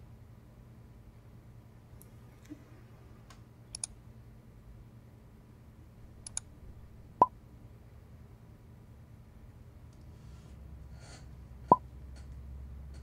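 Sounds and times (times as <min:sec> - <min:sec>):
mouse clicks: 0:03.7 - 0:04.0, 0:06.1 - 0:06.5.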